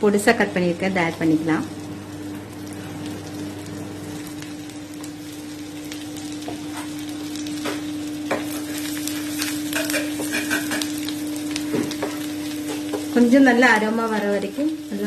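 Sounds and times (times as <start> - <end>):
garlic sizzling in butter: 0.0 - 15.0
steady hum: 0.0 - 15.0
spoon scraping a pan: 8.4 - 11.0.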